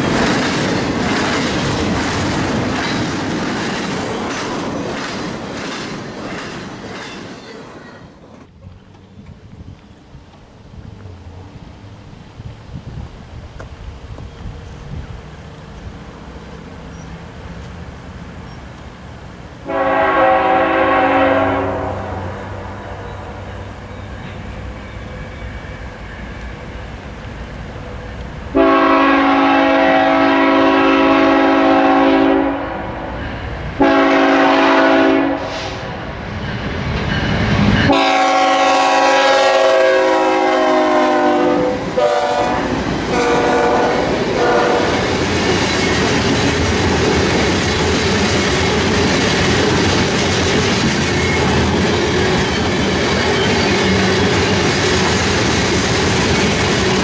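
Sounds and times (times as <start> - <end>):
train rumbling and clattering on rails: 0.0 - 57.0
locomotive air horn blasts: 19.6 - 22.6, 28.5 - 33.1, 33.8 - 35.9, 37.9 - 45.0.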